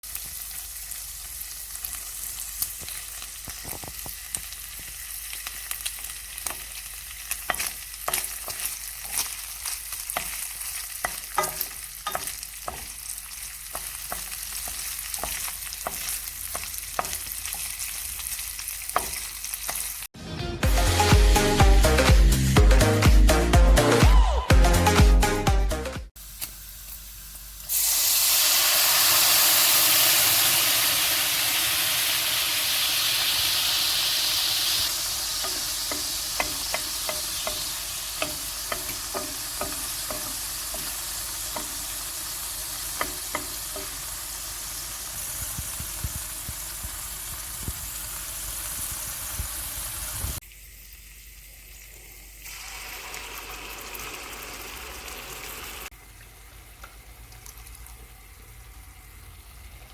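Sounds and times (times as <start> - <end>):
food sizzling in a frying pan: 0.0 - 20.2, 26.2 - 59.9
utensil clicking against pan: 35.4 - 41.9, 42.8 - 44.0.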